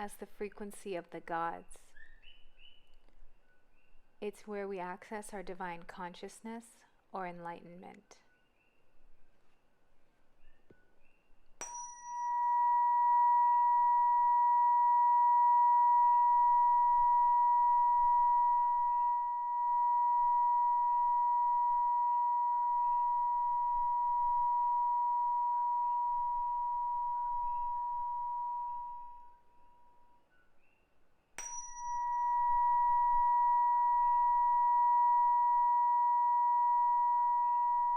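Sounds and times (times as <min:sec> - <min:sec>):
tuning fork ringing: 0:11.6 - 0:30.8, 0:31.4 - 0:37.9.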